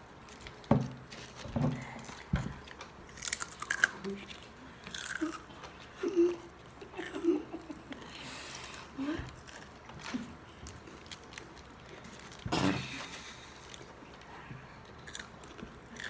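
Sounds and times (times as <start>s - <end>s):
crackly chewing: 0.0s - 16.0s
potato chips crunching: 0.2s - 5.6s, 10.7s - 14.3s, 14.9s - 16.0s.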